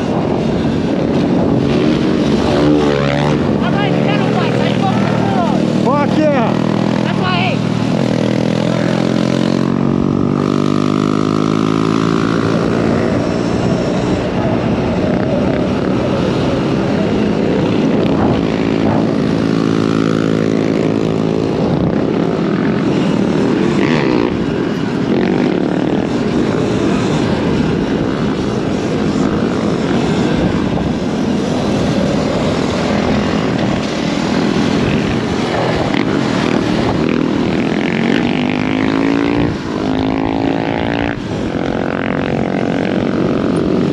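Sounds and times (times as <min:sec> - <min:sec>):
steady rush of noise: 0:00.0 - 0:43.9.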